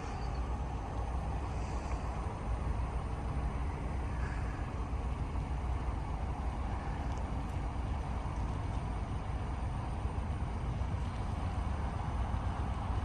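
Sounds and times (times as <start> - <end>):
distant vehicles rumbling: 0.0 - 13.0.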